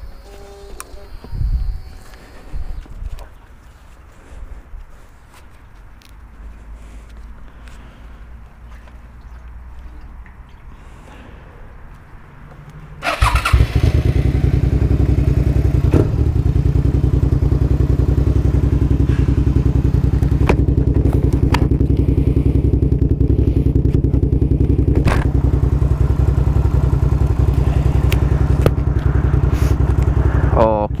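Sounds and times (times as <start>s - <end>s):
motorcycle engine idling: 13.0s - 31.0s.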